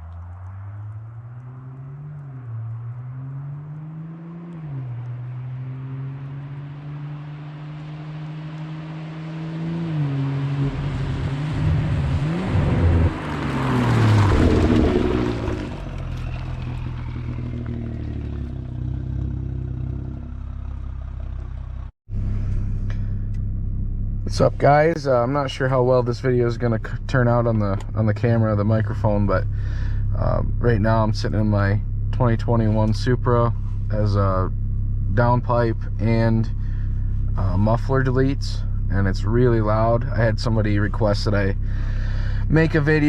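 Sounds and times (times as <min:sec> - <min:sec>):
car passing by: 0:00.0 - 0:18.8
car engine accelerating: 0:00.0 - 0:43.0.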